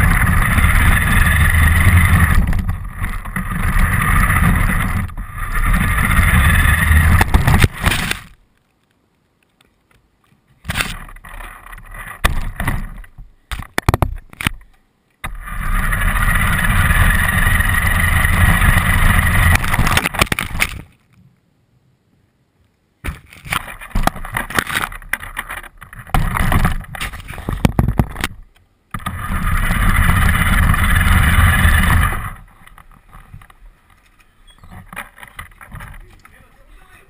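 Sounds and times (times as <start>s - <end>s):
toy car motor and wheel noise: 0.0s - 8.2s, 15.3s - 20.0s, 29.0s - 32.5s.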